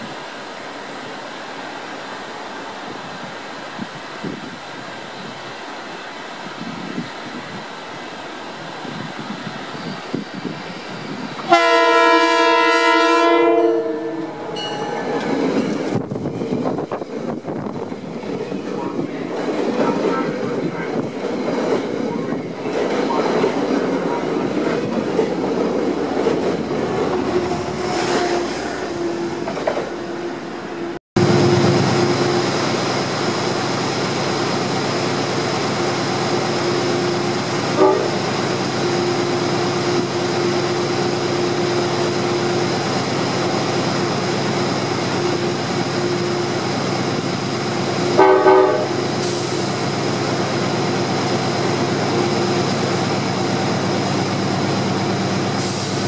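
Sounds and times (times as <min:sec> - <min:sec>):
train coaches rolling past: 0:00.0 - 0:56.0
train horn blast: 0:11.4 - 0:15.3, 0:27.2 - 0:32.5, 0:37.7 - 0:38.2, 0:48.0 - 0:49.4.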